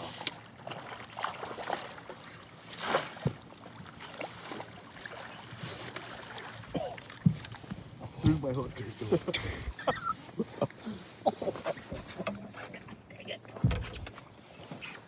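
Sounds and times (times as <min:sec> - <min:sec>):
water sloshing: 0:00.0 - 0:15.0
knocks and thumps on boat: 0:00.6 - 0:10.2, 0:11.3 - 0:15.0.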